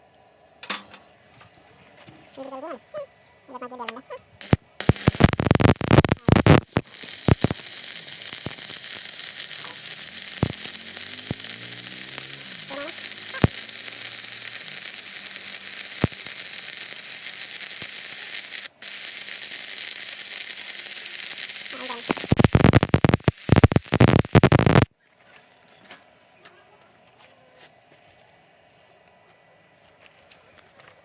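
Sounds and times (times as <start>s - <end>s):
sharp welding pops: 4.4s - 24.9s
welding arc crackling: 4.4s - 24.9s.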